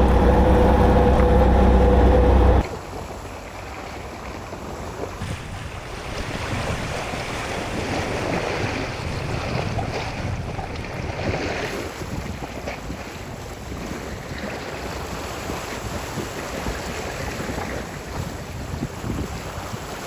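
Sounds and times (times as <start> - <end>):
wind buffeting microphone: 0.0 - 2.7, 5.2 - 14.3
waves at sea: 0.0 - 20.0.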